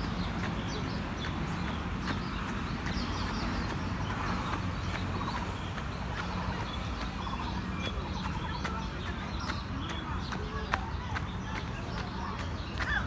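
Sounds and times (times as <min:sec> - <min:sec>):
birds chirping and trilling: 0:00.0 - 0:13.0
footsteps on clay track: 0:00.0 - 0:13.0.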